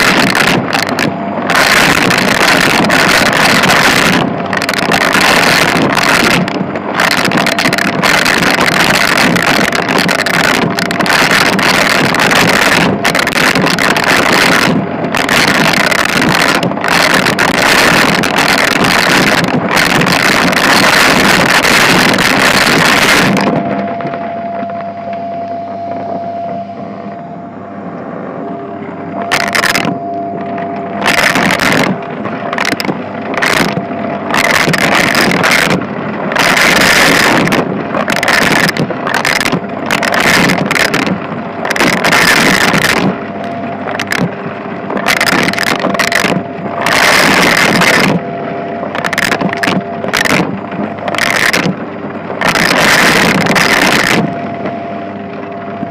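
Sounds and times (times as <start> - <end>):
vacuum cleaner motor whine: 21.6 - 32.1.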